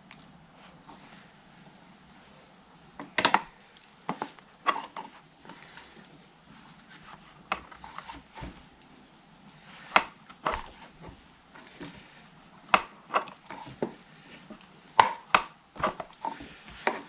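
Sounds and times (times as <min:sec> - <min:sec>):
hand tools clinking: 0:03.6 - 0:04.1.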